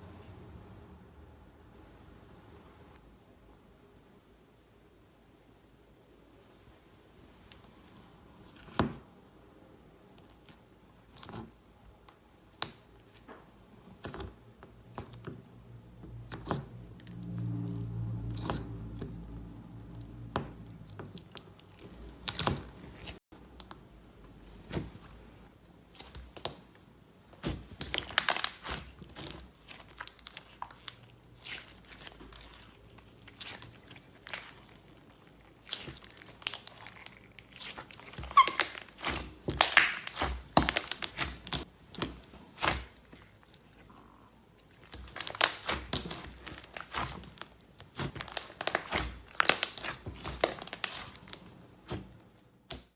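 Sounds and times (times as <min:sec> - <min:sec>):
slime squeezed by hand: 0:27.4 - 0:41.7, 0:44.8 - 0:52.0.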